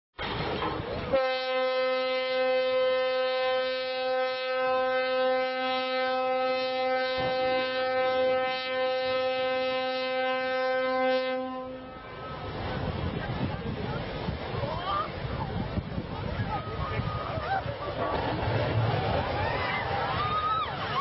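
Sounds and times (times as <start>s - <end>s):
long horn blast: 1.1s - 12.2s.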